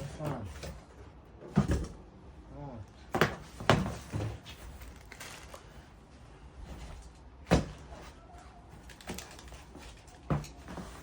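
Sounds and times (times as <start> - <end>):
packaging rustling and shuffling: 3.4 - 11.0.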